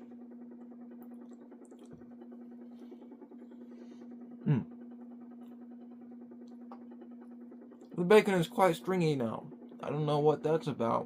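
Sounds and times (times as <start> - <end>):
low electrical hum: 0.0 - 11.0
short grunt: 4.4 - 4.8.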